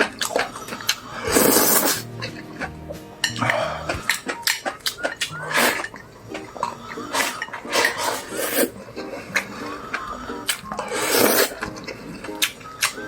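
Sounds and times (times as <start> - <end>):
utensils clattering against pot: 3.2 - 6.4, 7.0 - 9.7.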